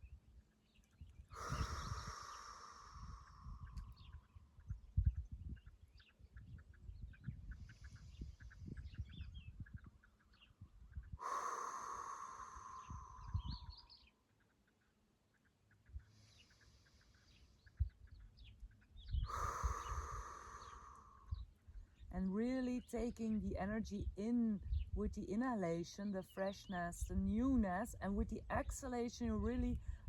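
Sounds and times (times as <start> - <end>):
small birds chirping: 0.0 - 30.0
person exhaling with a sigh: 1.3 - 3.8, 11.2 - 13.8, 19.2 - 21.4.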